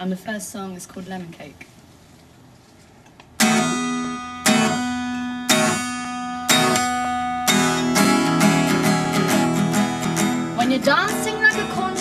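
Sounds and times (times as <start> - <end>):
acoustic guitar strumming: 3.4 - 12.0.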